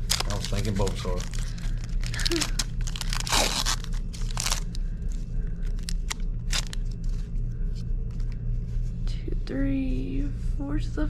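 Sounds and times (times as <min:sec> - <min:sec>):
foil wrapper crinkling and tearing: 0:00.0 - 0:07.2
steady low hum: 0:00.0 - 0:11.0.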